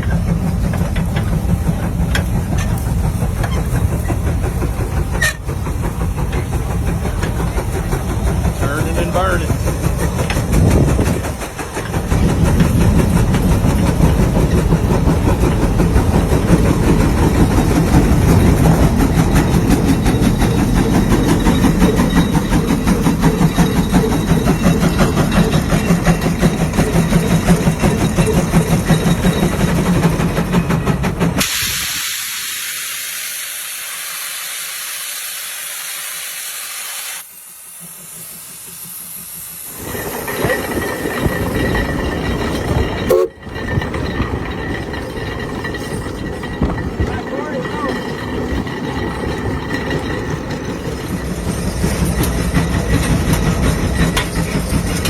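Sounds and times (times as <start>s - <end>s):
tractor engine running: 0.0s - 31.4s.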